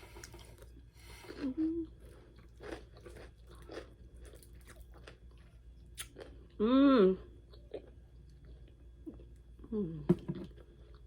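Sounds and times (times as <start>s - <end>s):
chewing and crunching food: 0.0s - 6.6s, 7.4s - 9.6s, 10.2s - 11.0s
person humming: 1.4s - 1.9s.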